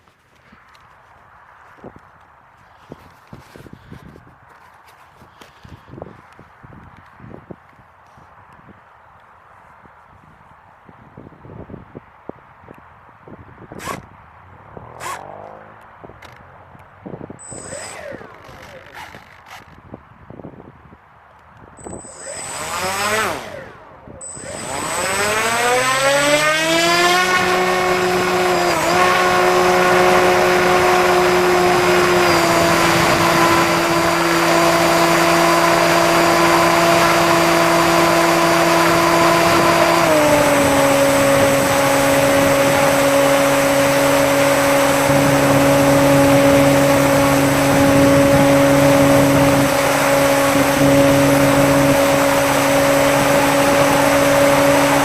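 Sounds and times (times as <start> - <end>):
electric motor and propeller whine: 14.7 - 19.9, 21.8 - 55.0.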